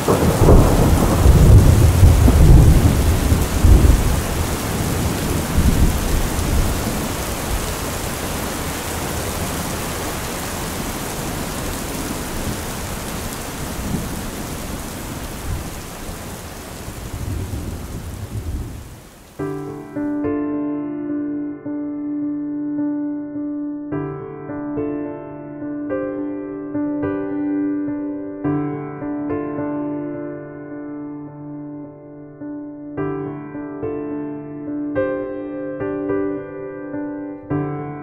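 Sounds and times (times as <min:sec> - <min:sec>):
soft piano music: 0:00.0 - 0:15.4, 0:19.4 - 0:38.0
thunder rumble: 0:00.0 - 0:19.3
steady rain: 0:00.0 - 0:20.0.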